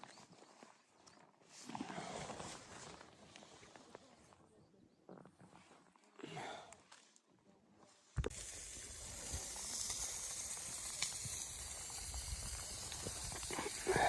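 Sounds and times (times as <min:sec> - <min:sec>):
blizzard wind hissing: 0:08.4 - 0:14.0.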